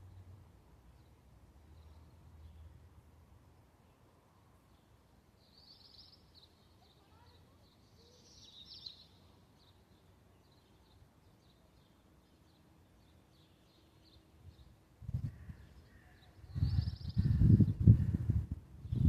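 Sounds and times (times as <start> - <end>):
faint bird chirps: 4.7 - 18.0.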